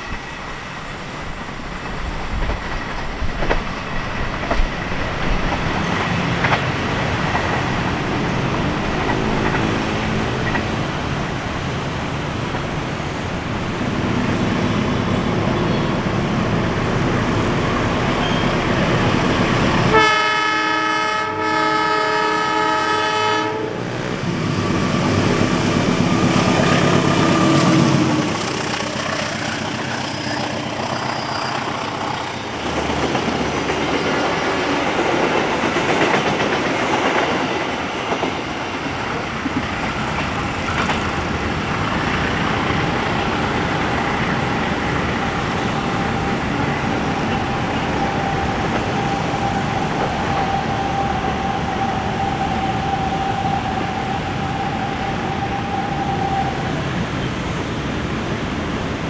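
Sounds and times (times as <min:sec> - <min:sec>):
locomotive engine passing: 0:00.0 - 0:59.0
train wheels on rails: 0:00.0 - 0:59.0
locomotive air horn: 0:19.9 - 0:24.0.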